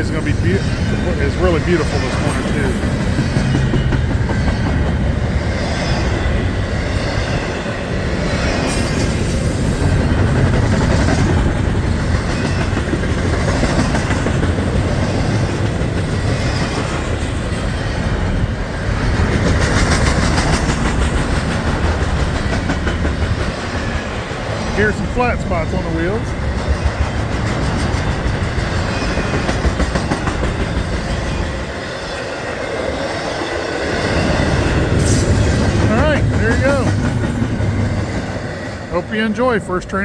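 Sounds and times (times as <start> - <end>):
freight train rumbling past: 0.0 - 40.0
wheels clattering over rails: 8.4 - 39.1.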